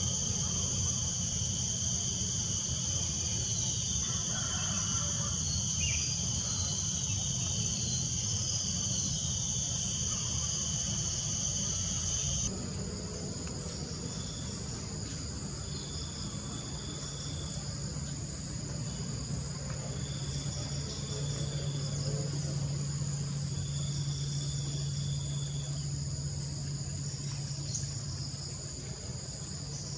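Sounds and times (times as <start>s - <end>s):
shrill insect buzz: 0.0s - 12.5s
insect chorus: 0.0s - 29.9s.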